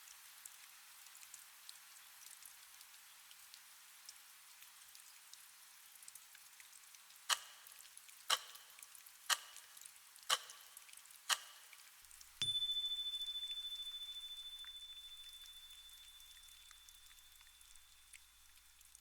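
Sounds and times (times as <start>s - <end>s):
soft rain: 0.0s - 19.0s
sharp ticks: 7.3s - 7.6s, 8.3s - 11.7s
bell ringing: 12.4s - 18.1s.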